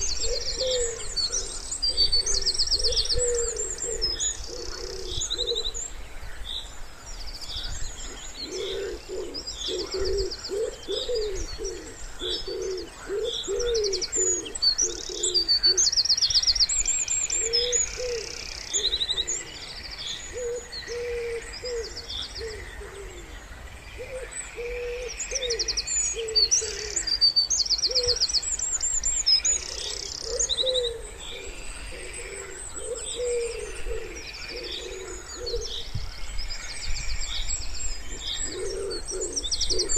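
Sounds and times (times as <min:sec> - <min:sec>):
wood pigeons cooing: 0:00.0 - 0:05.9, 0:07.9 - 0:15.9, 0:17.3 - 0:19.7, 0:20.3 - 0:23.4, 0:24.0 - 0:27.2, 0:27.8 - 0:28.3, 0:29.5 - 0:36.0, 0:38.0 - 0:39.9
songbirds chirping and trilling: 0:00.0 - 0:39.9.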